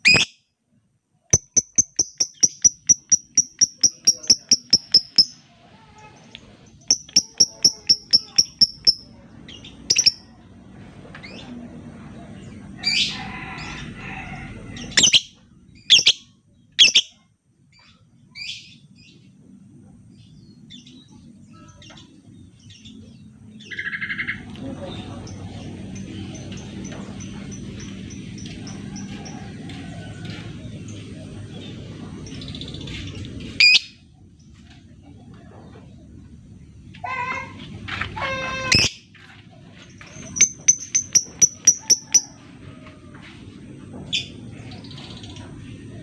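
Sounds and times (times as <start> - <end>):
bird chirping calls: 1.3 - 5.4, 6.0 - 10.4, 14.8 - 17.2, 40.0 - 42.4.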